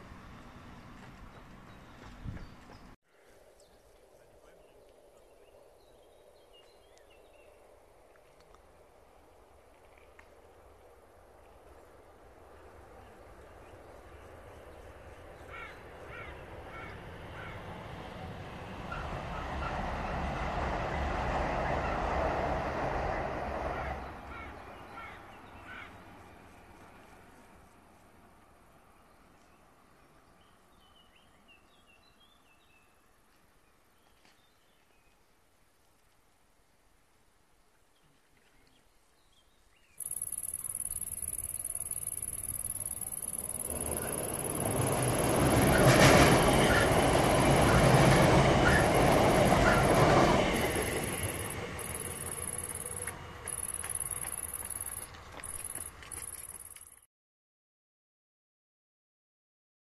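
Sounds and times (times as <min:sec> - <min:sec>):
electric train rumble: 0:10.6 - 0:27.6, 0:40.0 - 0:56.8
faint bird chirps: 0:39.8 - 0:44.8
high-pitched hiss: 0:40.0 - 0:45.6, 0:50.6 - 0:56.6
bird calling: 0:40.0 - 0:56.8.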